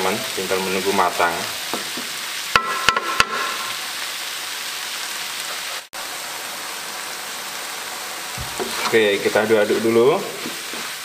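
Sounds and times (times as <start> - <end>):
food sizzling in a wok: 0.0 - 11.0
wooden spatula tapping wok: 1.7 - 3.4.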